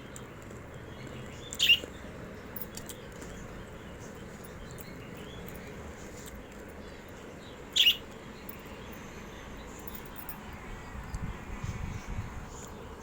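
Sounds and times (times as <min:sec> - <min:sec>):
steady background noise: 0:00.0 - 0:13.0
lovebird sharp call: 0:07.8 - 0:08.0.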